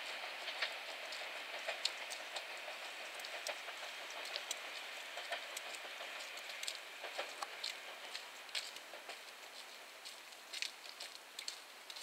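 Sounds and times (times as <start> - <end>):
distant train on track: 0.0 - 12.0.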